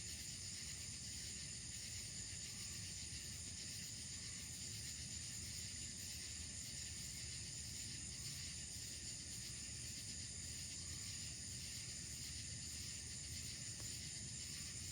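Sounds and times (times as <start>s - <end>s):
night insects trilling: 0.0s - 14.9s.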